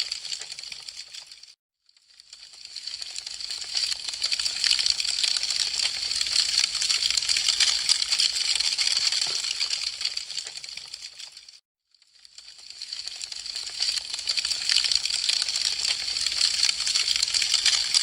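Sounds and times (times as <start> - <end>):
wood fire crackling: 0.0 - 1.4, 2.4 - 11.5, 12.4 - 18.0.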